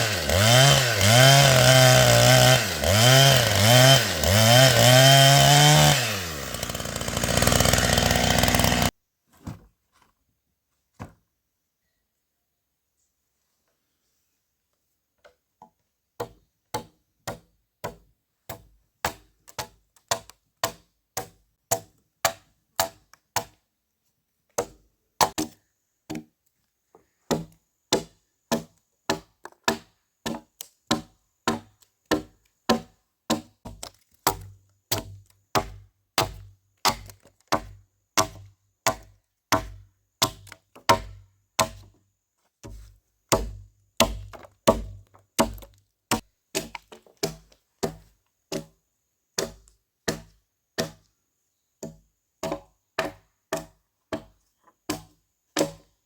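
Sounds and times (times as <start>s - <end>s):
hand tool striking wood: 16.2s - 23.6s, 24.6s - 26.3s, 27.3s - 41.9s, 42.6s - 48.8s, 49.4s - 51.1s, 51.8s - 55.9s.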